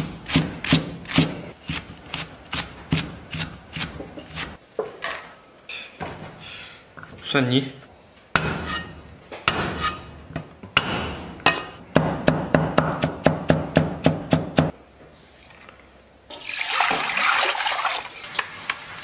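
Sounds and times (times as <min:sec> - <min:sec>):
cleaver chopping on a board: 0:12.0 - 0:14.7
water rushing into a pot: 0:15.4 - 0:19.0.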